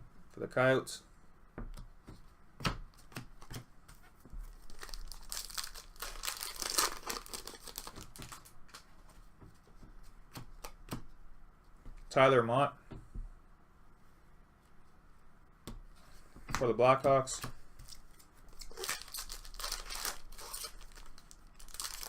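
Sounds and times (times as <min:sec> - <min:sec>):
wrapper tearing and crinkling: 0:04.6 - 0:08.8, 0:17.9 - 0:22.0
cards clicking and tapping: 0:10.3 - 0:11.1.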